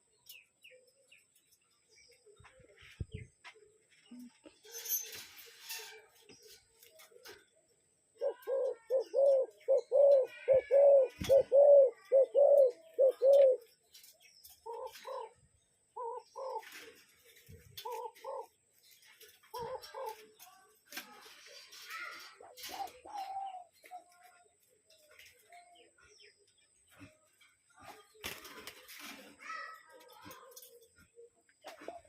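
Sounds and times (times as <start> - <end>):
dove cooing: 8.2 - 13.7, 14.6 - 15.4, 16.0 - 18.6, 19.5 - 20.3, 21.4 - 23.9.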